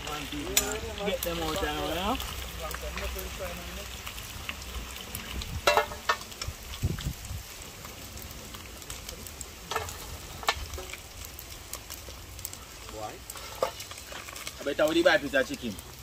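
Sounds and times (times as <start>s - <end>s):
chicken frying in hot oil: 0.0s - 16.0s.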